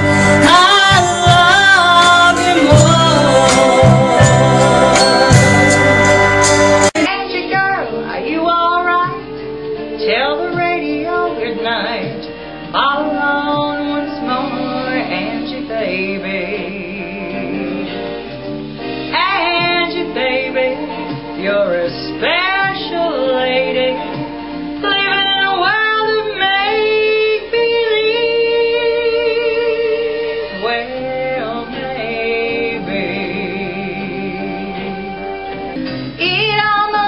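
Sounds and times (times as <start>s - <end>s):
woman singing: 0.0s - 18.1s, 19.1s - 35.4s, 36.2s - 37.0s
instrumental backing music: 0.0s - 37.0s.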